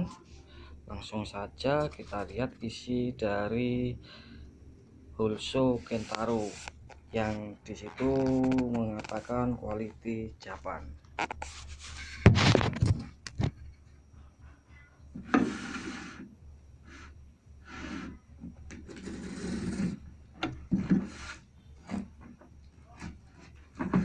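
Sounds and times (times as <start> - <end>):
packaging rubbing and scraping: 5.8 - 9.4, 11.2 - 12.9, 18.8 - 20.0.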